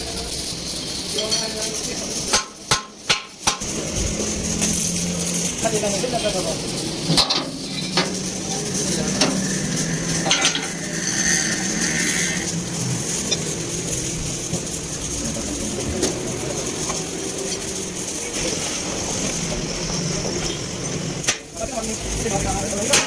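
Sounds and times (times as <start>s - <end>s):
metal tools clinking and scraping: 0.8s - 1.8s, 7.1s - 19.3s
steady low hum: 6.5s - 18.3s.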